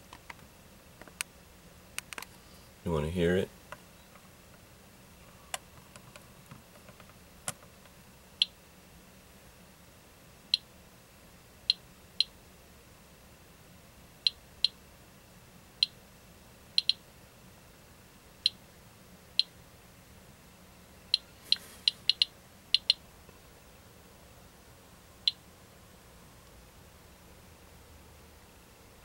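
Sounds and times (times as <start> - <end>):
geiger counter clicking: 16.8 - 17.0, 22.0 - 23.0.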